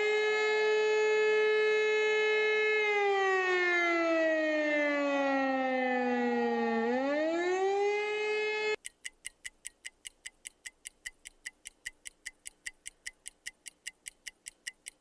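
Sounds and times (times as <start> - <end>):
air raid siren rising: 0.0 - 8.8
clock ticking: 8.8 - 15.0.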